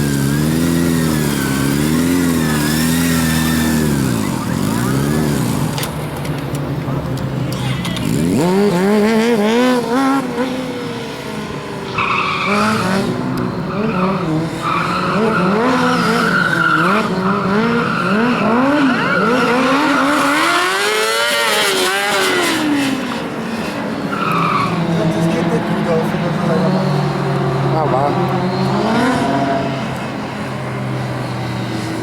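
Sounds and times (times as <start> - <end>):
tyre squealing: 0.0 - 5.9, 11.9 - 22.8
motorcycle engine revving: 0.0 - 6.2, 7.6 - 11.5, 12.4 - 23.3, 24.7 - 32.0.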